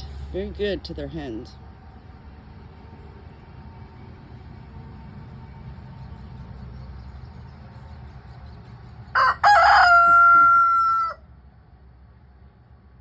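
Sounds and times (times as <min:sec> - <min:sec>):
rooster crowing: 0:09.1 - 0:11.2.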